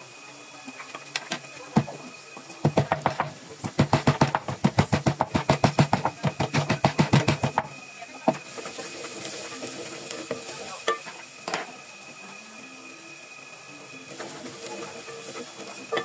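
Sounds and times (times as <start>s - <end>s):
food sizzling in pan: 0.0s - 16.0s
utensil clinking against pot: 10.3s - 11.7s, 14.2s - 16.0s.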